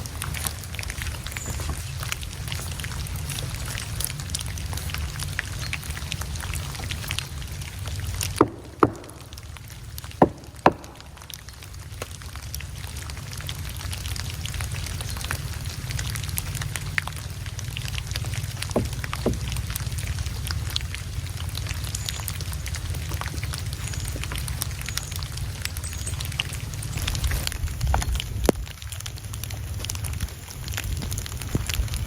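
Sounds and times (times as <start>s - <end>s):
crackle of small ticks: 0.0s - 32.0s
sharp knocks: 8.4s - 9.5s, 10.1s - 11.3s, 18.7s - 19.9s.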